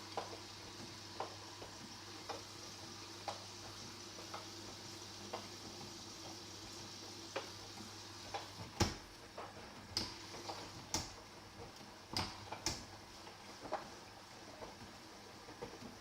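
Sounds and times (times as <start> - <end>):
washing machine humming: 0.0 - 16.0
washing machine clicks and knocks: 8.3 - 13.0.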